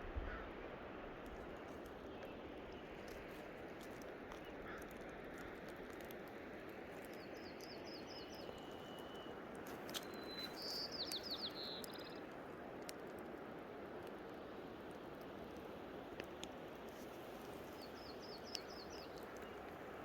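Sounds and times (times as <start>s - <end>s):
small birds chirping: 1.8s - 12.9s, 16.3s - 20.0s.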